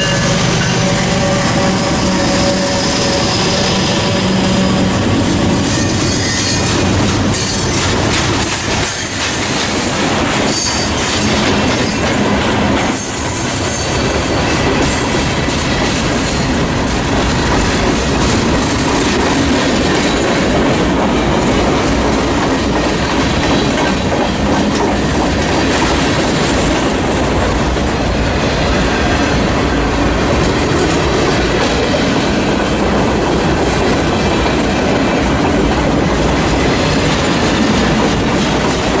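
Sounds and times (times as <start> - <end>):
high wheel squeal: 0.0 - 6.8
train wheels clacking over rail joints: 0.0 - 39.0.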